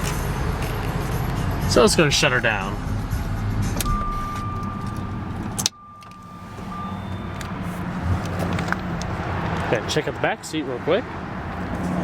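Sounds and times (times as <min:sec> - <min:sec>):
car engine idling: 0:00.0 - 0:12.0
steady electronic tone: 0:02.5 - 0:08.5.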